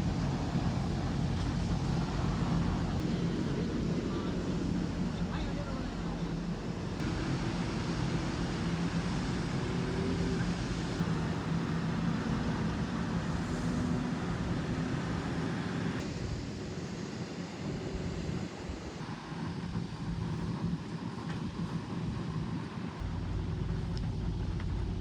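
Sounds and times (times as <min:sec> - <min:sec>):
vehicle engine drone: 0:00.0 - 0:25.0.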